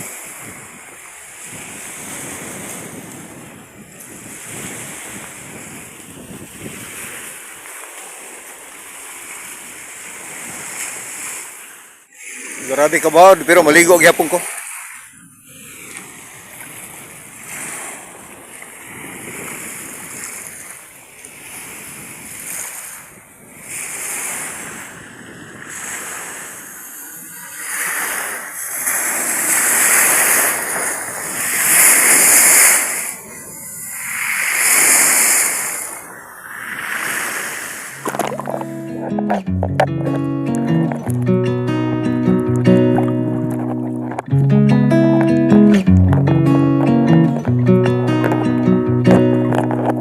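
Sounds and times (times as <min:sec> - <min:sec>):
strong wind: 0:00.0 - 0:07.5, 0:15.1 - 0:40.2
sea waves breaking: 0:00.0 - 0:50.0.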